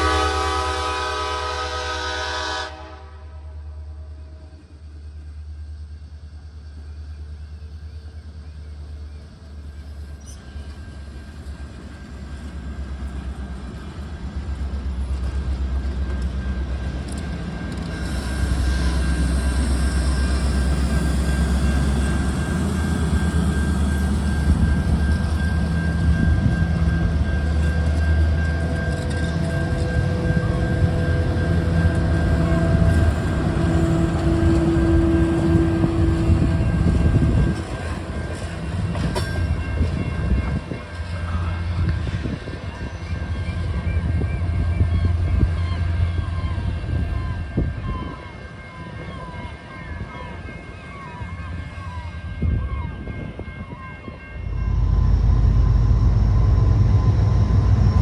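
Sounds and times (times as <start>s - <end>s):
locomotive engine rumbling: 0.0s - 50.0s, 54.3s - 58.0s
steady whine: 14.6s - 42.2s, 54.3s - 58.0s.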